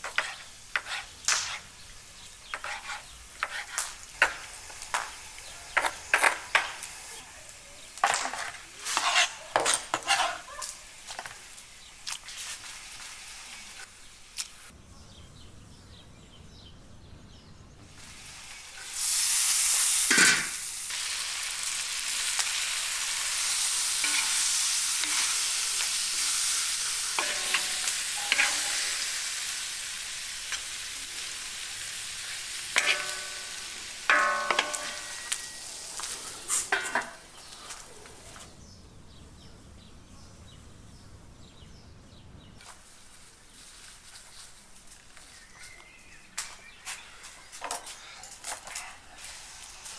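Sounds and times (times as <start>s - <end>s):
spoon scraping and clinking pan: 8.1s - 10.5s, 23.4s - 29.4s, 32.7s - 37.2s
food sizzling in hot pan: 10.6s - 14.7s, 17.9s - 37.5s.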